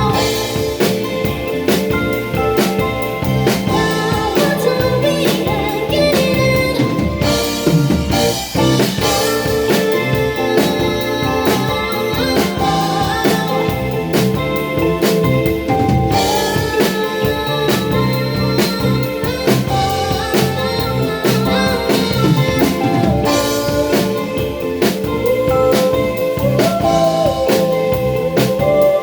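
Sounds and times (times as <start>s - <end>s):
live band instrumental: 0.0s - 29.0s.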